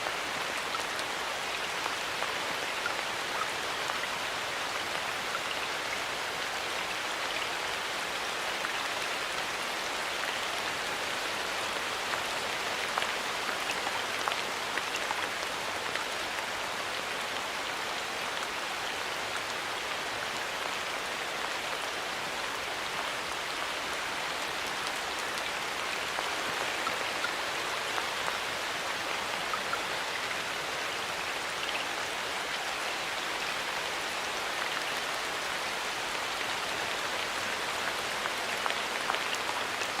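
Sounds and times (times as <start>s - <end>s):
rain falling: 0.0s - 40.0s
raindrops hitting leaves: 20.6s - 40.0s.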